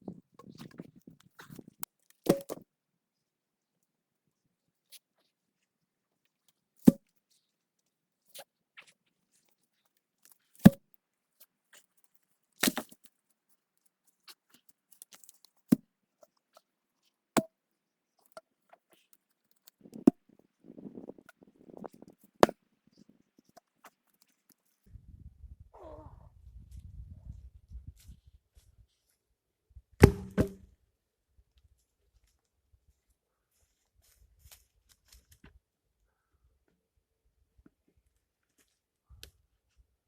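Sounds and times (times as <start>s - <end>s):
hand tool striking wood: 2.3s - 2.6s, 30.0s - 30.6s.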